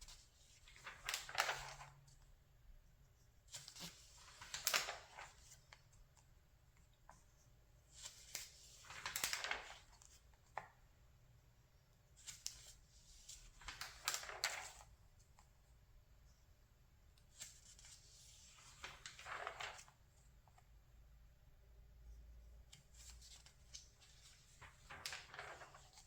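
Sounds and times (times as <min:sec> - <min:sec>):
magazine pages turning: 0:00.0 - 0:02.2, 0:03.4 - 0:06.3, 0:07.9 - 0:10.8, 0:12.2 - 0:15.0, 0:17.3 - 0:20.6, 0:22.7 - 0:26.0.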